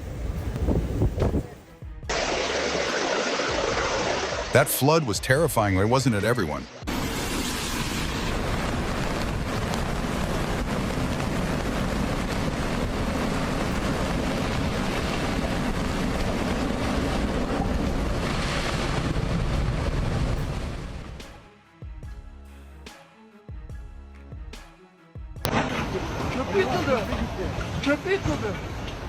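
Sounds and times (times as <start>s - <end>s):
wind buffeting microphone: 0.0s - 1.7s, 8.1s - 21.2s
rushing turbulent water: 2.1s - 21.3s, 25.5s - 29.0s.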